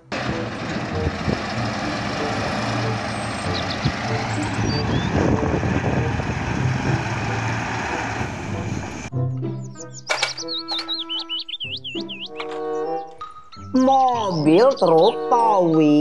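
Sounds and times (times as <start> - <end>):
dump truck diesel engine rumble: 0.0 - 9.1.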